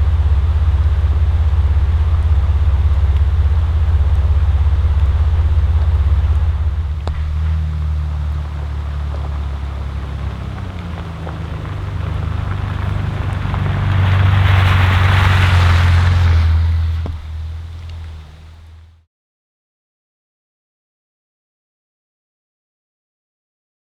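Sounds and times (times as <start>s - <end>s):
road noise: 0.0s - 19.0s
vehicle engine rumble: 0.0s - 19.0s.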